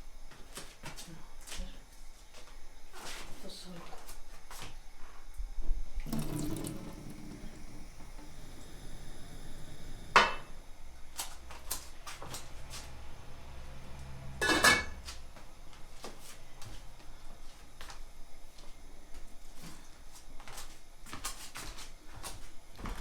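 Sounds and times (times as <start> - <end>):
water splashing: 6.0 - 10.5
dishes clattering: 9.6 - 10.6, 14.4 - 15.0
dishes and utensils clinking: 14.4 - 15.0.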